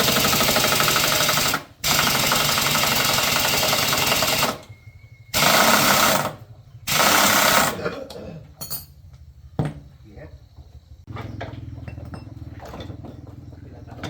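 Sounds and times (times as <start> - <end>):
pulsing power tool: 0.0 - 4.6, 5.4 - 7.8.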